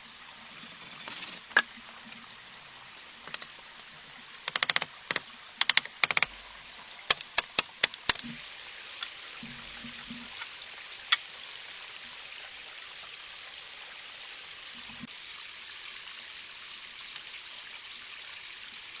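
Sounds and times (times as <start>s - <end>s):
rain falling in forest: 0.0s - 19.0s
raindrop clicks: 3.2s - 6.4s, 7.1s - 8.4s.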